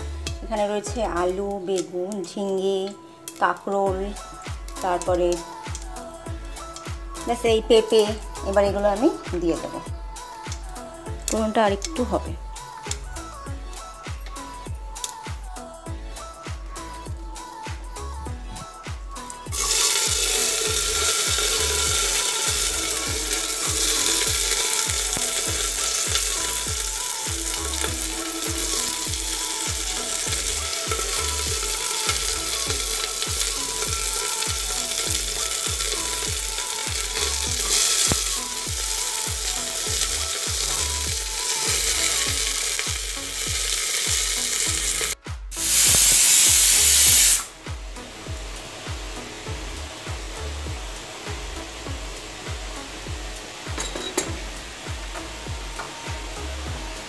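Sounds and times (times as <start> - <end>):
vegetables sizzling in oil: 2.2 - 9.8, 19.4 - 57.0
hot oil sizzling in a wok: 2.5 - 15.2, 19.2 - 57.0.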